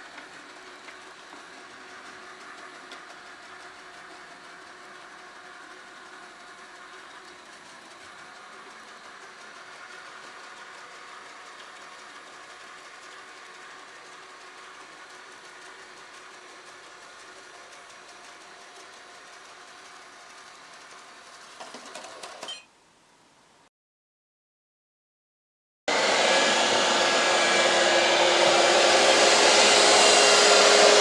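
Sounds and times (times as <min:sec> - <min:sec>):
robot vacuum cleaner running: 0:00.0 - 0:21.6, 0:25.9 - 0:31.0.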